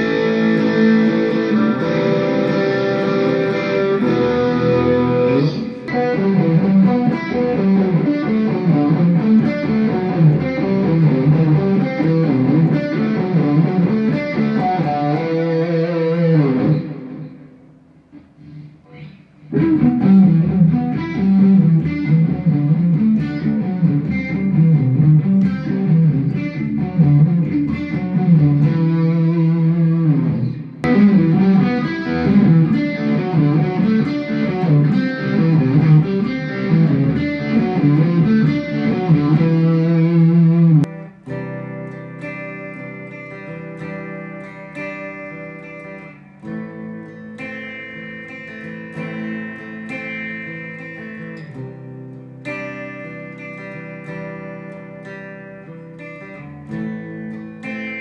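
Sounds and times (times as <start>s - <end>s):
electric guitar playing: 0.0s - 58.0s.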